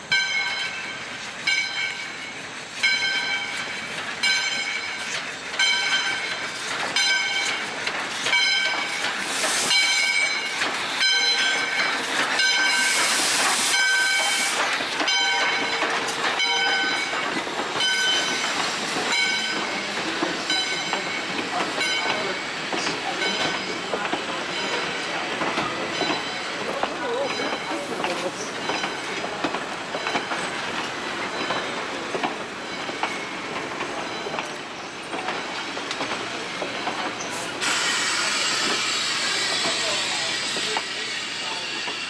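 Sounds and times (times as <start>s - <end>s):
passenger train rolling: 0.0s - 42.0s
steam hiss: 6.1s - 25.1s, 37.2s - 42.0s.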